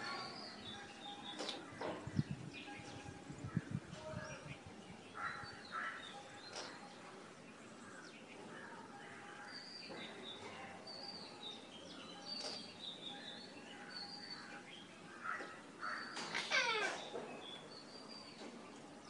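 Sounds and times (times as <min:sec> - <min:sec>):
rough bird calls: 0:12.4 - 0:18.4.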